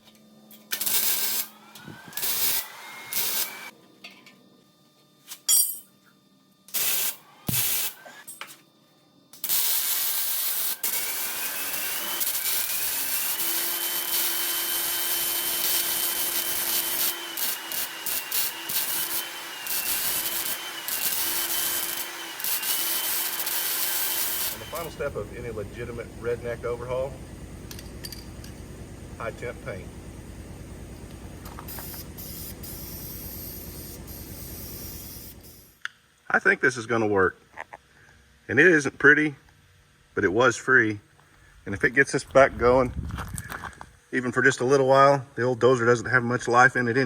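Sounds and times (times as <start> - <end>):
angle grinder grinding steel: 0.7 - 3.7, 9.4 - 28.6, 31.4 - 35.7.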